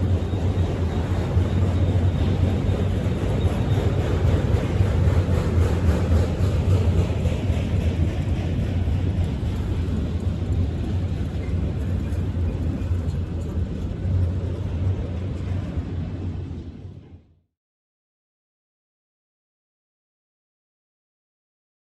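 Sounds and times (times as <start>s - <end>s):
freight train wheels rumbling on rail: 0.0s - 17.4s.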